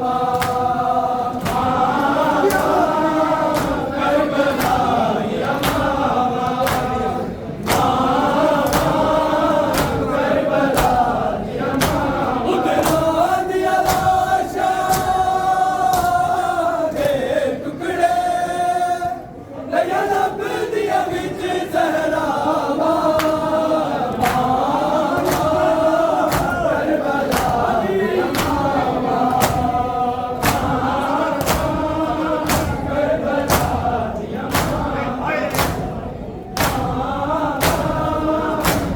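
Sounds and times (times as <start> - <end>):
rhythmic chest-beating strikes: 0.0 - 18.4, 19.8 - 38.9
men chanting in unison: 0.0 - 38.9.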